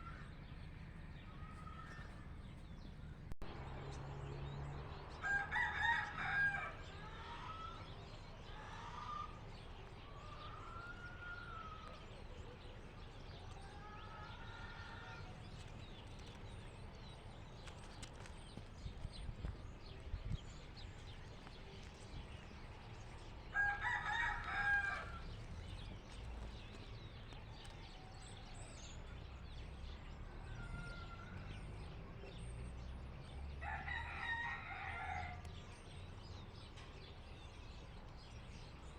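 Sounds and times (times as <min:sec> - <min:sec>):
rooster crowing: 0:05.2 - 0:07.8, 0:10.1 - 0:12.0, 0:23.5 - 0:25.3, 0:33.6 - 0:35.5.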